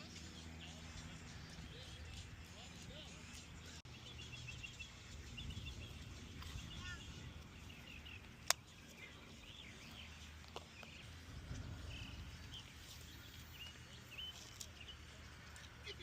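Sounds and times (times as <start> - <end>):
low steady rumble: 0.0 - 16.0
small birds chirping: 0.0 - 16.0.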